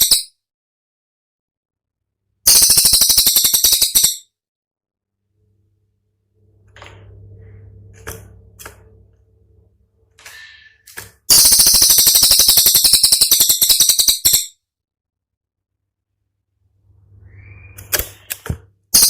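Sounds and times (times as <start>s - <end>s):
bird fast rattling song: 0.0s - 0.3s, 2.5s - 4.2s, 11.3s - 14.6s.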